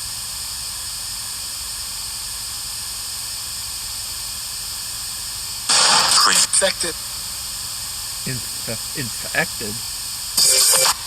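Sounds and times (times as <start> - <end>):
static hiss: 8.3 - 9.8.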